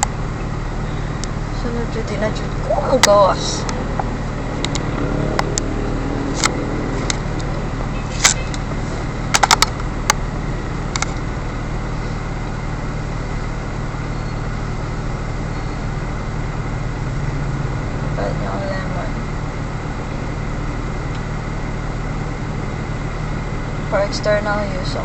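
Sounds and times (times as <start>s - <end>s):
vehicle engine idling: 0.0s - 25.0s
sharp clicks: 3.0s - 5.7s, 9.3s - 10.2s, 10.9s - 11.3s.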